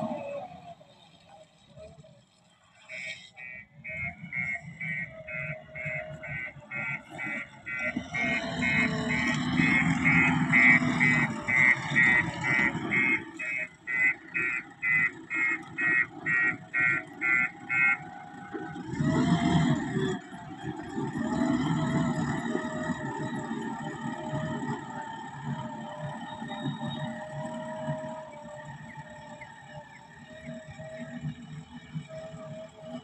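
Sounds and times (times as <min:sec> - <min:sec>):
low engine rumble: 0:00.0 - 0:33.0
rapid beeping: 0:03.5 - 0:25.4.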